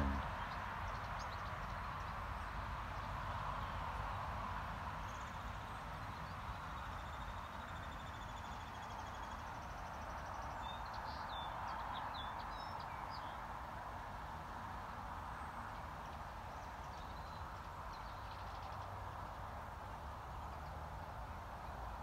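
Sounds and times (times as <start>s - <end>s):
low rumble: 0.0s - 0.3s
faint birdsong: 0.0s - 4.3s, 5.0s - 13.5s, 15.1s - 22.0s
outdoor background noise: 0.0s - 22.0s.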